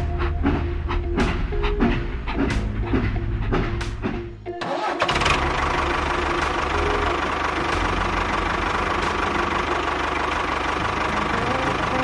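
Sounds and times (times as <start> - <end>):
small engine starting and running: 4.6 - 12.0.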